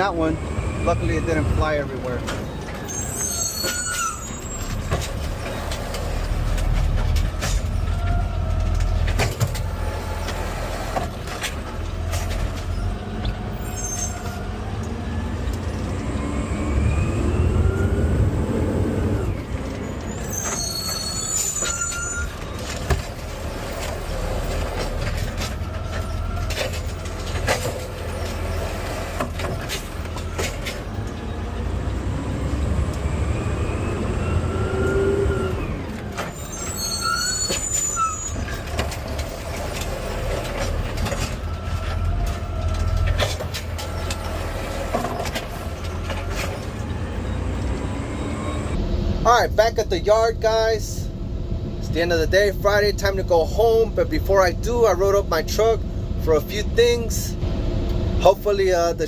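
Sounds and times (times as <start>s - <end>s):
truck engine rumbling: 0.0s - 59.0s
brief high squeals: 2.8s - 4.9s, 13.6s - 14.4s, 19.3s - 22.4s, 36.3s - 38.7s
rattles and knocks: 4.7s - 12.8s, 21.6s - 31.2s.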